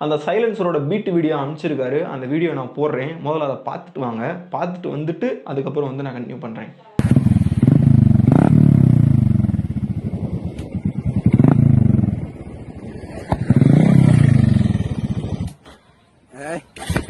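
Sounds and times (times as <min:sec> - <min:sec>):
motorcycle engine revving: 0:07.0 - 0:15.7.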